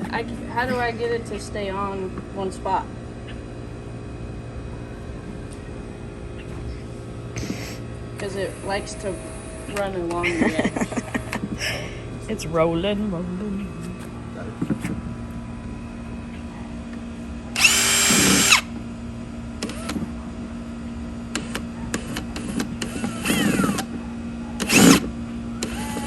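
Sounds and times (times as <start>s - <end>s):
electric drill motor whining: 17.6s - 18.8s, 22.4s - 24.0s, 24.6s - 26.0s.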